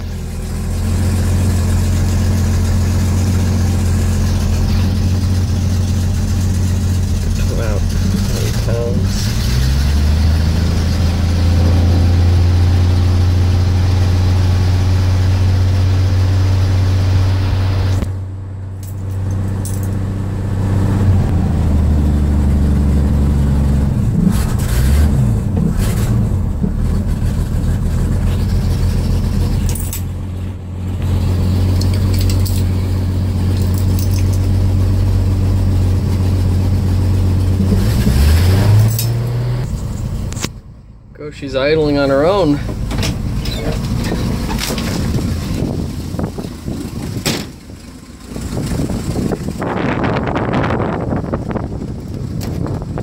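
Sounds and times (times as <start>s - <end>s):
engine revving: 0.0s - 18.2s, 19.0s - 40.6s
truck engine running: 0.0s - 53.0s.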